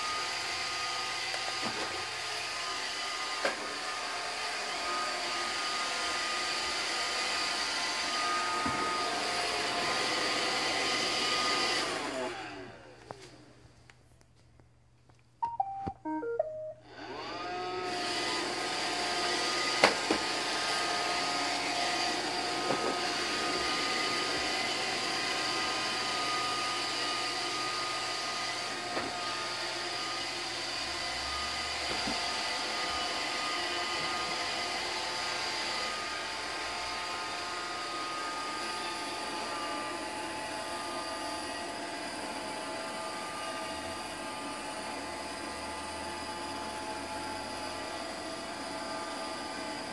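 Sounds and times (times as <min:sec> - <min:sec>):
vacuum motor whine: 0:00.0 - 0:12.9, 0:16.8 - 0:49.9
robot vacuum beeping tune: 0:15.4 - 0:17.0.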